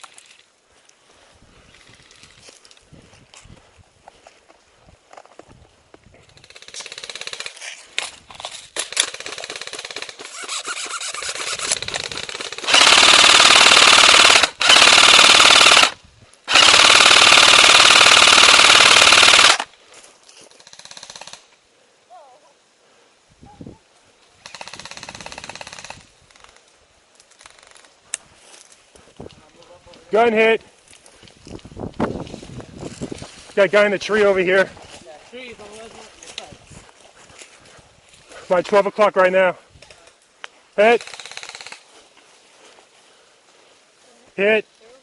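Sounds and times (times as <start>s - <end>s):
airsoft guns firing bursts: 6.4s - 7.6s, 8.8s - 19.7s, 24.4s - 26.1s, 40.8s - 41.9s.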